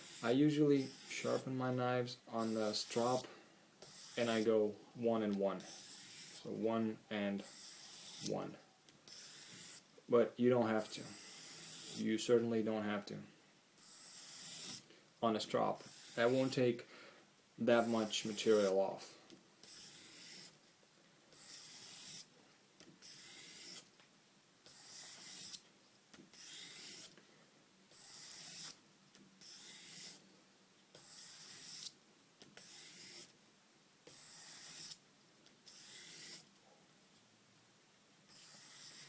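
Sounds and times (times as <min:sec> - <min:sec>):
knife blade scraping sandpaper: 0:00.0 - 0:01.6, 0:02.4 - 0:03.2, 0:03.8 - 0:04.6, 0:05.6 - 0:06.6, 0:07.4 - 0:08.4, 0:09.1 - 0:09.8, 0:10.8 - 0:12.1, 0:13.8 - 0:14.8, 0:15.8 - 0:16.6, 0:17.7 - 0:18.8, 0:19.6 - 0:20.6, 0:21.4 - 0:22.3, 0:23.0 - 0:23.8, 0:24.7 - 0:25.6, 0:26.3 - 0:27.1, 0:27.9 - 0:28.8, 0:29.4 - 0:30.2, 0:31.0 - 0:32.0, 0:32.6 - 0:33.3, 0:34.1 - 0:35.0, 0:35.7 - 0:36.5, 0:38.3 - 0:39.0.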